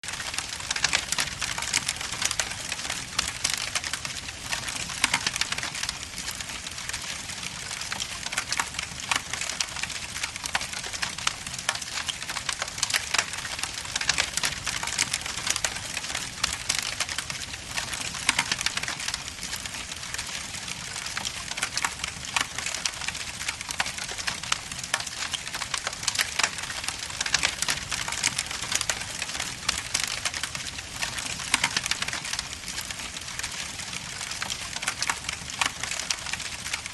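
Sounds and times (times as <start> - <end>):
wood fire crackling and popping: 0.0 - 36.9.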